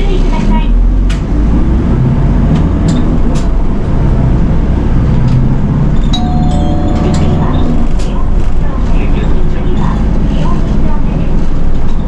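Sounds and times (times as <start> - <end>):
bus engine low rumble: 0.0 - 12.0
short steady tone: 6.2 - 8.0.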